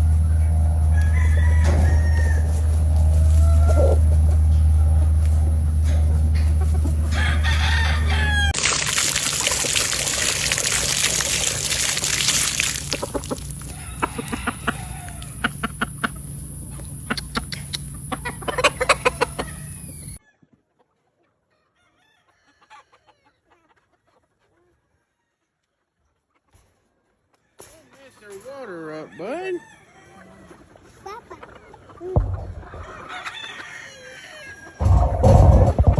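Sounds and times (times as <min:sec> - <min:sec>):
chickens clucking: 0:00.0 - 0:08.6, 0:09.4 - 0:35.9
roosters crowing: 0:00.0 - 0:08.6, 0:09.4 - 0:20.5, 0:21.6 - 0:23.2, 0:27.4 - 0:30.7, 0:32.5 - 0:35.6
low hum and hiss: 0:00.0 - 0:20.2.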